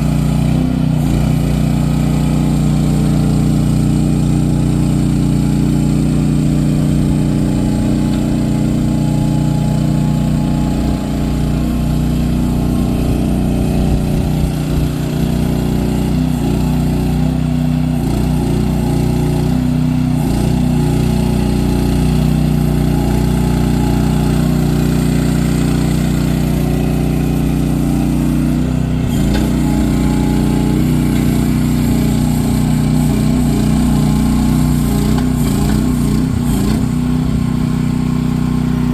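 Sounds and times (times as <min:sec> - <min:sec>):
loader engine running: 0:00.0 - 0:38.9.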